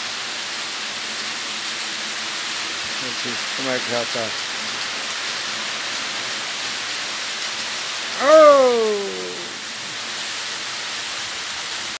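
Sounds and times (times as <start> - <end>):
rain falling: 0.0 - 12.0
rising and falling call: 8.2 - 9.6.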